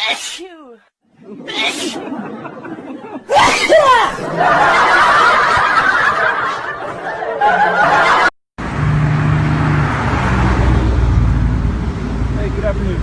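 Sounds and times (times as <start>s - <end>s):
people laughing: 1.1s - 8.4s
road noise: 7.9s - 13.0s
car engine humming: 8.6s - 13.0s.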